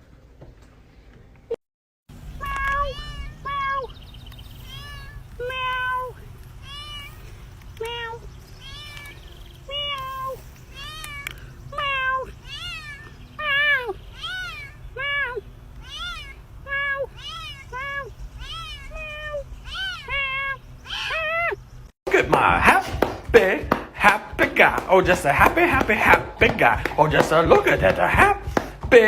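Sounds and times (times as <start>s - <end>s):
cat meowing: 2.3s - 21.6s.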